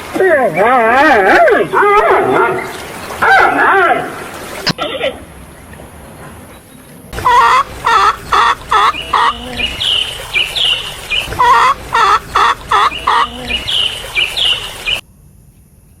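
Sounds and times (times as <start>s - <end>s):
chicken calling: 4.6s - 15.0s.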